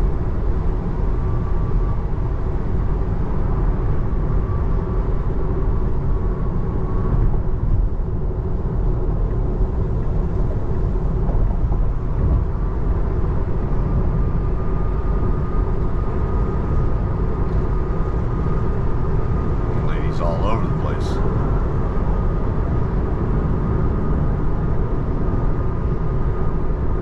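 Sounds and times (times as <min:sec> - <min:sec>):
road and tyre noise in car cabin: 0:00.0 - 0:27.0
faint steady hum: 0:14.3 - 0:22.9.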